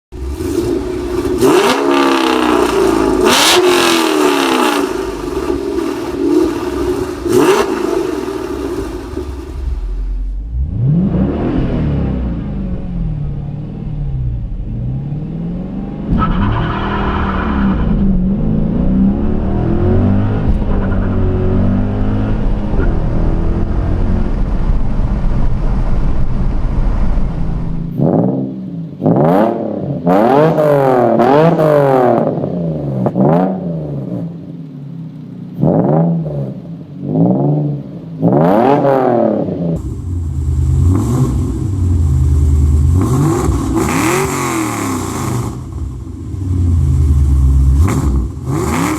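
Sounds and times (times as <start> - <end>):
car exhaust revving: 0.1 - 24.5, 38.2 - 48.9.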